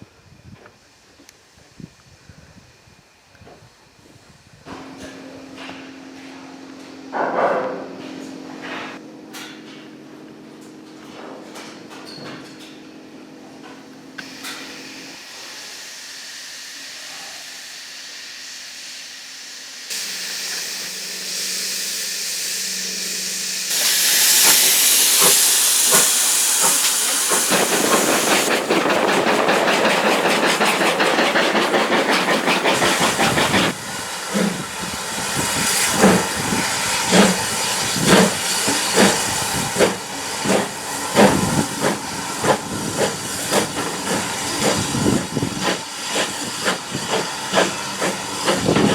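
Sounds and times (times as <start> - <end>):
steam locomotive hissing: 14.2 - 48.9.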